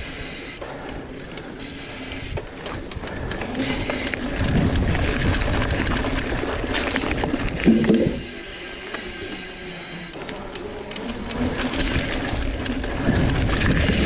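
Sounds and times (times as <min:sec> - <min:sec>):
bike rattling clicks and knocks: 0:00.0 - 0:14.0
bike tyre noise: 0:00.0 - 0:14.0
wind on microphone: 0:02.2 - 0:08.4, 0:11.2 - 0:14.0.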